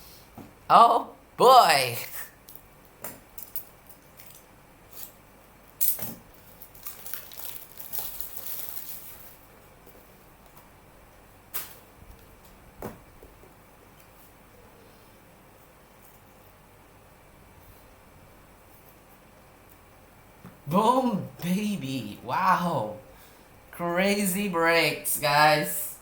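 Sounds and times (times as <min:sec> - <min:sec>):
soft rustling of packaging: 0:03.4 - 0:10.7.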